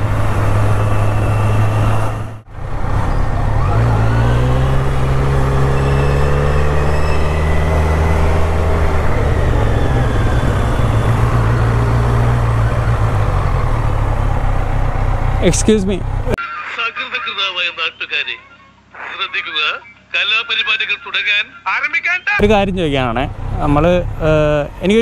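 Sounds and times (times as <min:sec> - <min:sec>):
motorcycle engine accelerating: 0:00.0 - 0:16.4, 0:22.4 - 0:25.0.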